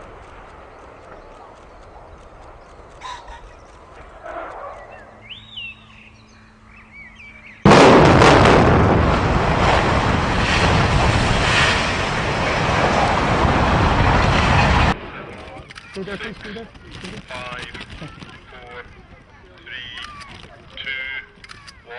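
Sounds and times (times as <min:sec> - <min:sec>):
building collapse rumble: 0:00.0 - 0:05.2, 0:07.6 - 0:20.8
rapid cracks of charges: 0:00.0 - 0:05.2
loud demolition blast: 0:07.6 - 0:15.2.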